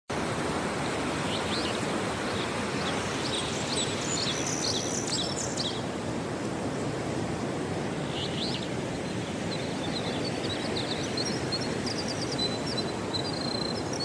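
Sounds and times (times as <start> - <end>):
outdoor background hiss: 0.1 - 14.0
birds chirping: 1.2 - 6.0, 8.0 - 14.0.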